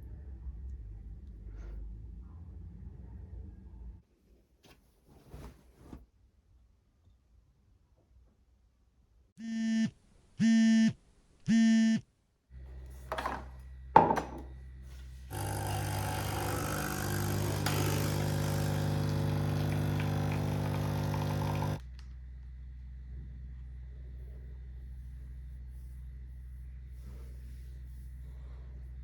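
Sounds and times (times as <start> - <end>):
appliance motor humming: 15.3 - 21.8.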